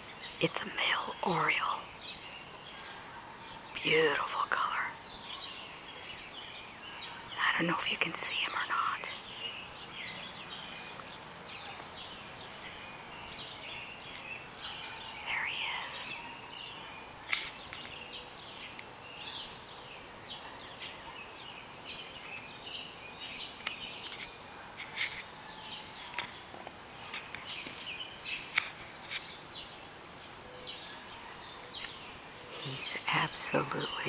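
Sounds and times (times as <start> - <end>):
faint outdoor hiss: 0.0 - 34.0
songbirds chirping and singing: 0.0 - 34.0.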